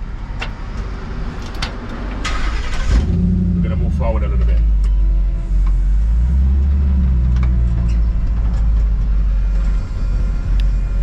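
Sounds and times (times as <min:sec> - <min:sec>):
truck engine running low speed: 0:02.9 - 0:11.0.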